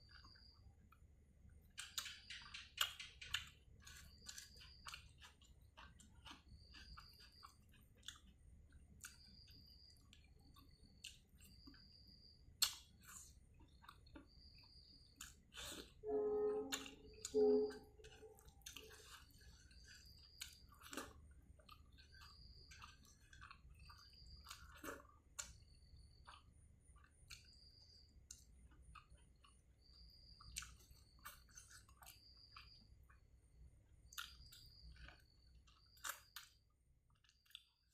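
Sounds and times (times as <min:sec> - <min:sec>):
chewing and mouth sounds: 0:00.0 - 0:12.0, 0:12.6 - 0:16.0, 0:18.0 - 0:33.4, 0:34.0 - 0:37.9
short pitched hum: 0:16.1 - 0:18.0.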